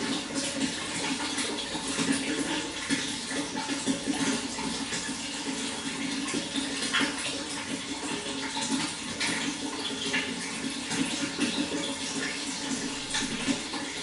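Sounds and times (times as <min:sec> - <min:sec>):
running water splashing: 0:00.0 - 0:14.0.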